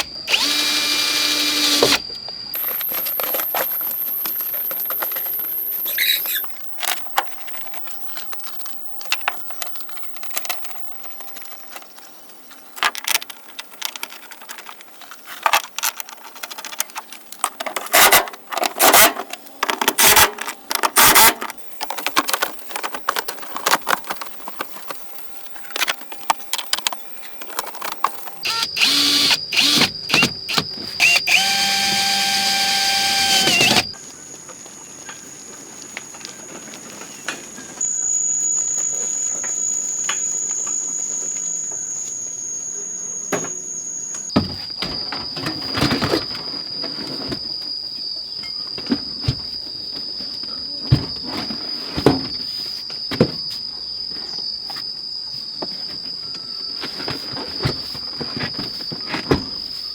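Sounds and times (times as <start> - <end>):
power drill running: 0.0 - 7.0, 20.0 - 20.3, 21.0 - 26.0, 27.1 - 34.0, 37.8 - 44.4.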